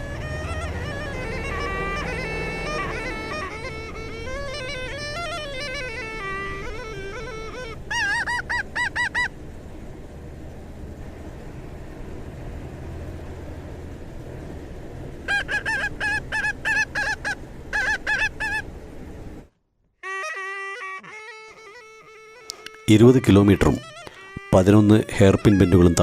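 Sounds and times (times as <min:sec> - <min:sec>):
short pitched honks: 0:00.0 - 0:09.1, 0:20.0 - 0:26.0.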